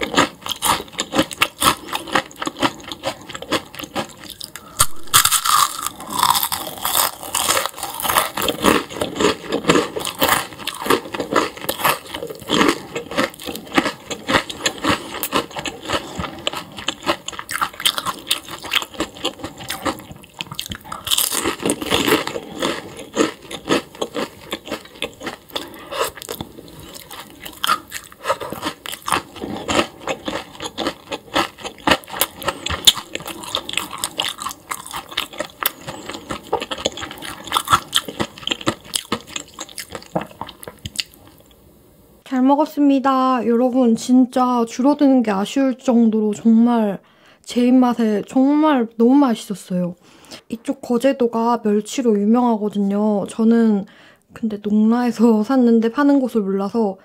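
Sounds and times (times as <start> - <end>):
person chewing crunchy food: 0.0 - 41.6.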